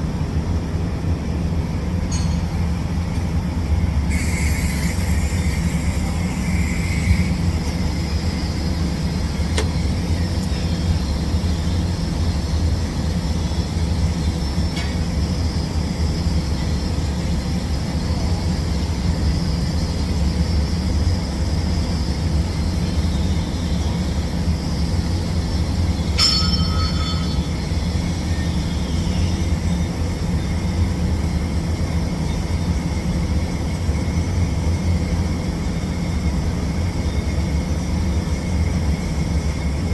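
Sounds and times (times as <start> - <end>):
welder humming with faint hiss: 2.1 - 15.6
brief high ringing: 26.2 - 27.8.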